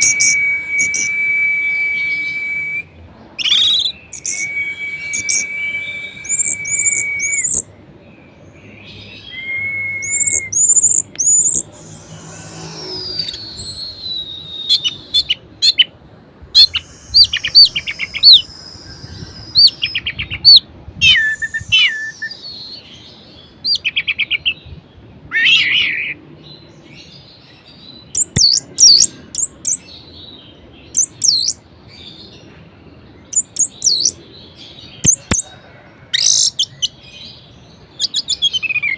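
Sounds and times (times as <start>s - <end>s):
thrush singing: 11.3s - 15.5s.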